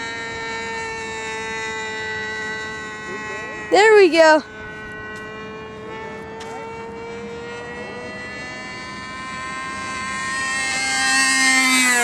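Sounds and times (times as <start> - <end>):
model airplane engine whine: 0.0 - 12.0.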